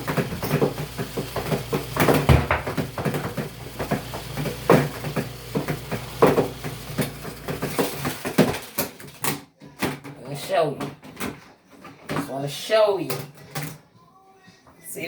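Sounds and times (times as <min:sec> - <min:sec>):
laundry rustling: 0:00.0 - 0:09.3
knocks and clunks of handling: 0:00.0 - 0:12.4.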